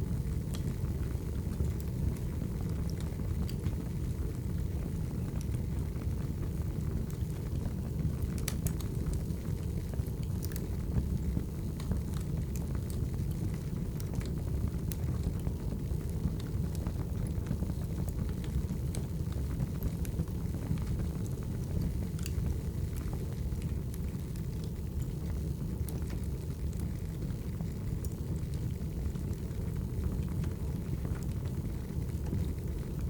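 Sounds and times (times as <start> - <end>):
firewood crackling and popping: 0.2 - 33.0.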